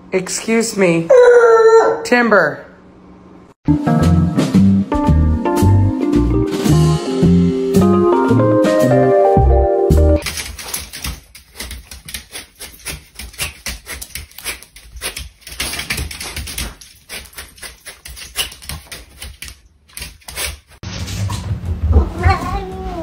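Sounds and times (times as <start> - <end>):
dog claws clicking on tile: 10.2 - 20.8.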